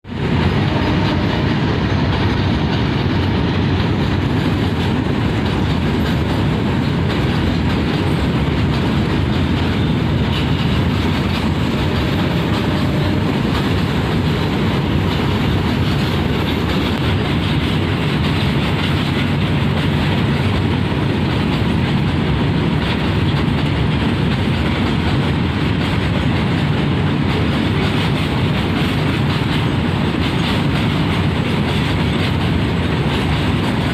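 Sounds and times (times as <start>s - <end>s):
train rumble: 0.0s - 33.9s
train wheels clattering on rails: 0.0s - 33.9s.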